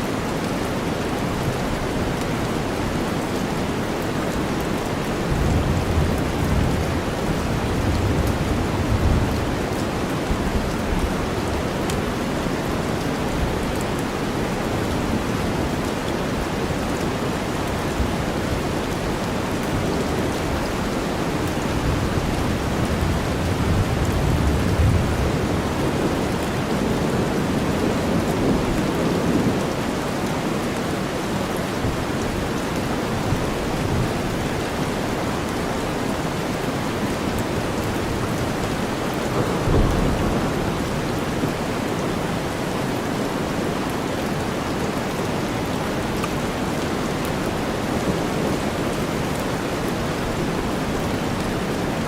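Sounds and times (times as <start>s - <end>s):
steady rain: 0.0s - 52.0s
low thunder rumbling: 19.7s - 29.8s, 37.8s - 42.9s.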